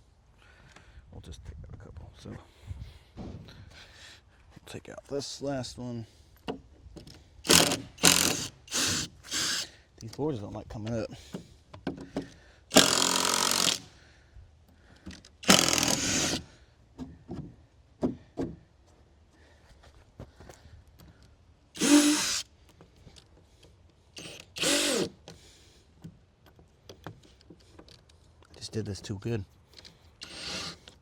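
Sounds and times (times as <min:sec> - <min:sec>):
power drill spinning: 0:07.4 - 0:09.7, 0:12.7 - 0:13.9, 0:15.4 - 0:16.5, 0:21.8 - 0:22.5, 0:24.2 - 0:25.2, 0:30.2 - 0:31.0
small knocks and clicks: 0:26.0 - 0:30.0.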